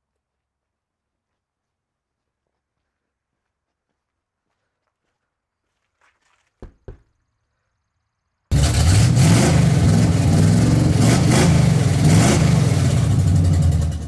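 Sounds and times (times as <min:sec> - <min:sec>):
car engine starting and revving: 0:08.5 - 0:14.0.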